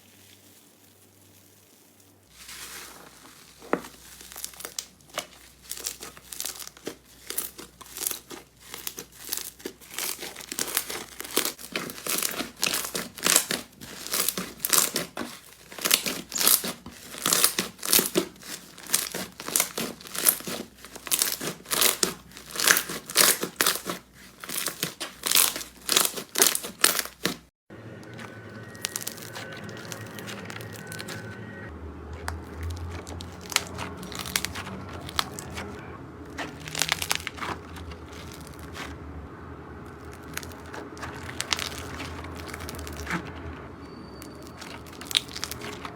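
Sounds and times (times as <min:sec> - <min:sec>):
slime being squeezed by hand: 0:40.0 - 0:43.2, 0:44.0 - 0:45.8.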